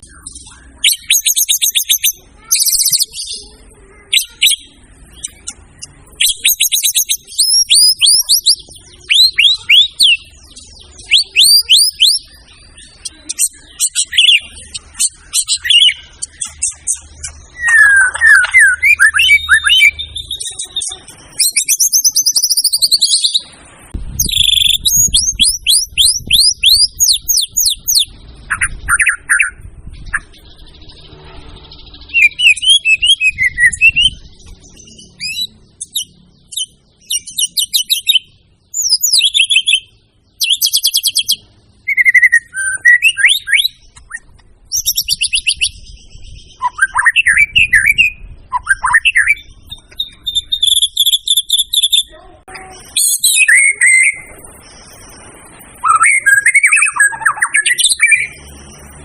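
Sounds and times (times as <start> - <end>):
bird singing varied phrases: 0.0 - 59.0.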